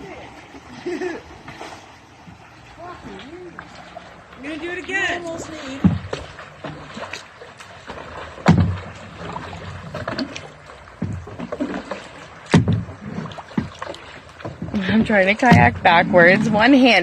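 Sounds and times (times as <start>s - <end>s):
water splashing: 0.0s - 17.0s
hollow knocks on kayak hull: 5.8s - 6.8s, 8.4s - 10.4s, 11.0s - 16.1s.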